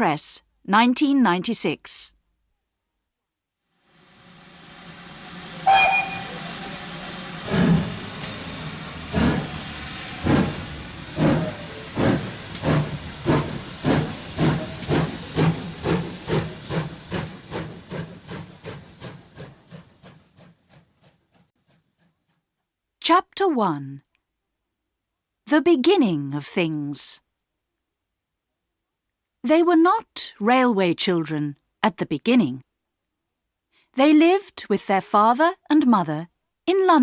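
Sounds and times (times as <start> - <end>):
steam hissing: 3.8 - 21.1
steam locomotive exhaust chuffs: 3.8 - 22.3
steam whistle: 5.3 - 10.4.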